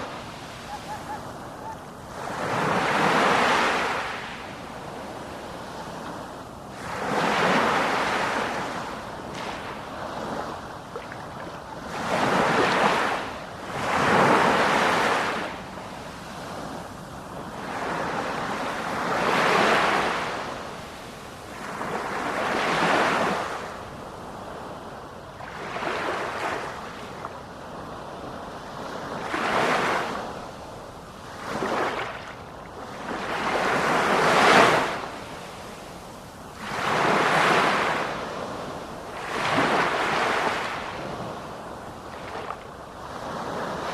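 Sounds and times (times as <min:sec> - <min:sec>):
sea waves breaking: 0:00.0 - 0:15.6, 0:31.3 - 0:43.9.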